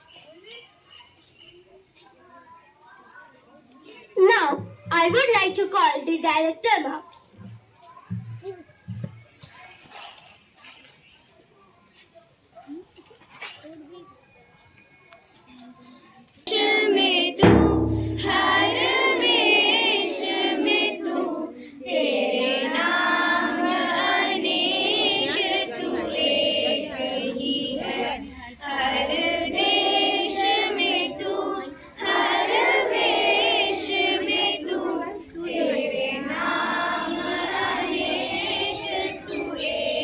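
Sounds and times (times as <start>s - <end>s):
children's choir singing: 16.1s - 40.0s.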